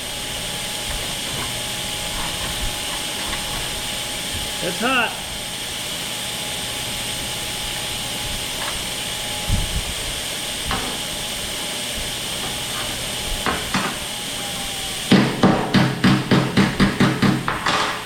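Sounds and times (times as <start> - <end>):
welding arc crackling: 0.0 - 18.0
sharp knocks: 12.4 - 14.0, 15.1 - 18.0.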